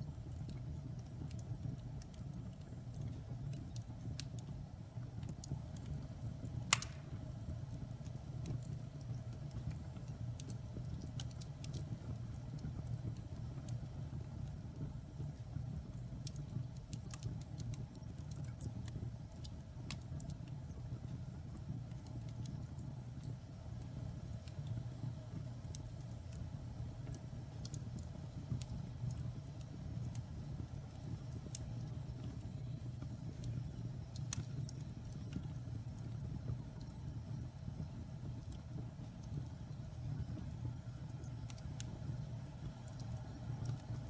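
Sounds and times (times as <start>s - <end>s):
burning logs crackling and popping: 0.0s - 44.0s.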